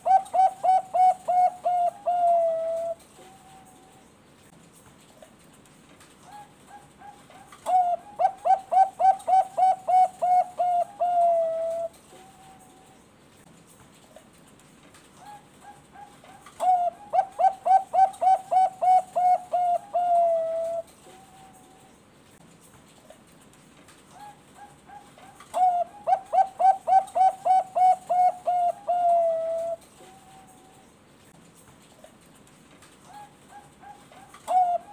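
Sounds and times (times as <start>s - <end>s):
dove cooing: 0.0s - 4.0s, 6.3s - 12.9s, 15.2s - 21.8s, 24.2s - 30.9s, 33.0s - 34.9s.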